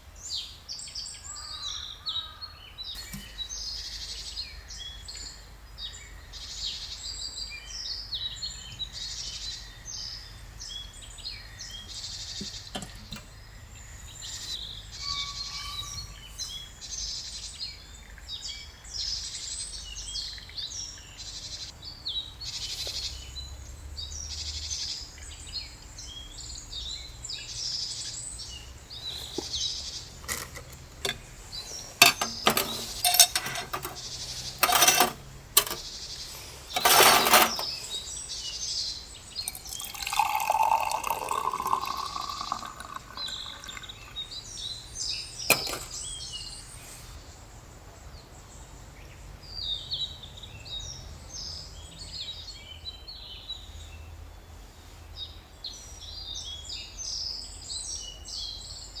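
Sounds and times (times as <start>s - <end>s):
small birds chirping: 0.0s - 54.1s.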